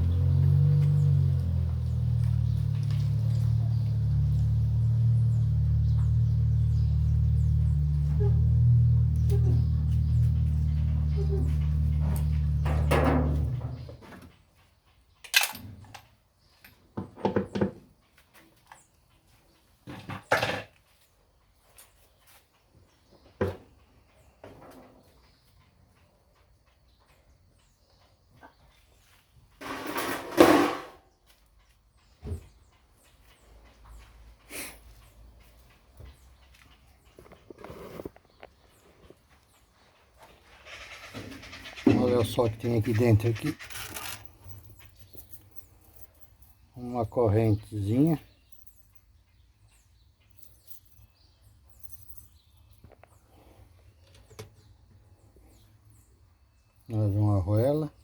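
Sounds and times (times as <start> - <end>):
faint bird chirping: 0.0 - 15.2, 20.9 - 29.6, 31.1 - 58.0
metal parts scraping: 40.8 - 46.6.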